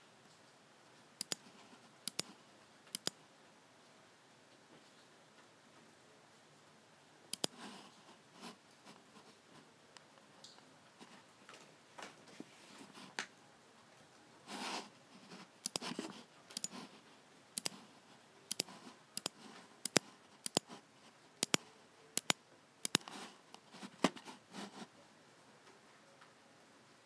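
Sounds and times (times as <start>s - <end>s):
computer mouse buttons clicking: 1.2s - 3.2s, 7.3s - 7.6s, 15.6s - 16.8s, 17.6s - 17.8s, 18.5s - 20.8s, 21.4s - 23.2s.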